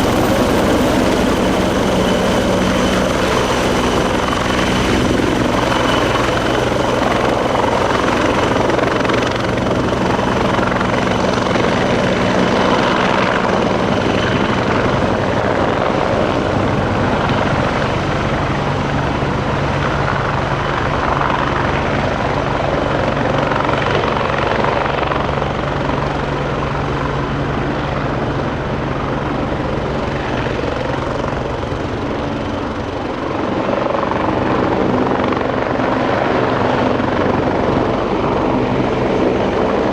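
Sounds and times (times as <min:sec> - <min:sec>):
steady high whine: 0:00.0 - 0:16.0
helicopter rotor and engines: 0:00.0 - 0:39.9.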